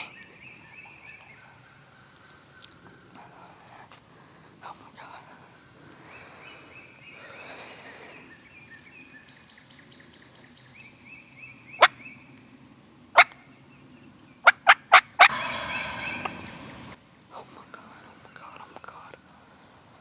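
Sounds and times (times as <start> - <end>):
wild turkey gobbling: 15.2 - 17.0.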